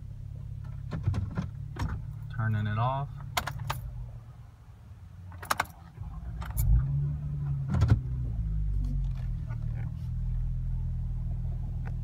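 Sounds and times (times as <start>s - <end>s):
car engine cranking and idling: 0.0s - 12.0s
keys jingling in ignition: 5.4s - 6.8s.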